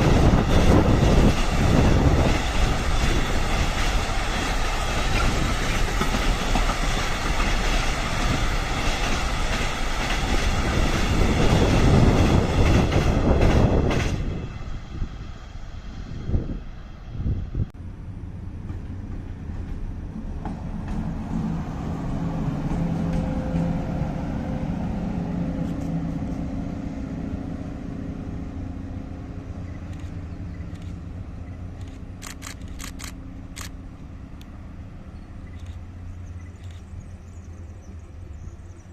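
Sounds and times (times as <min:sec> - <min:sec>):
train rumbling past: 0:00.0 - 0:38.9
sharp clicks: 0:31.8 - 0:33.8.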